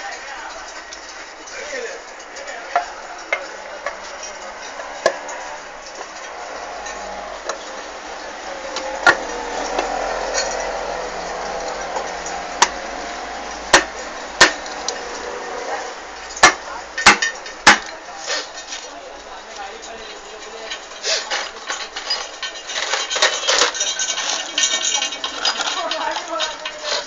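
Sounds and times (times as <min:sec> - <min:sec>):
metal tools knocking and clinking: 0:08.8 - 0:10.8, 0:19.8 - 0:27.0.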